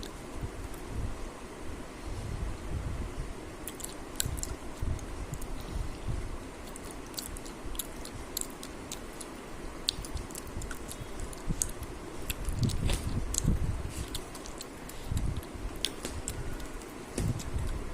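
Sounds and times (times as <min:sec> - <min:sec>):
person chewing crunchy food: 0:03.6 - 0:04.6, 0:06.6 - 0:17.8
low mouth sounds: 0:06.6 - 0:17.9.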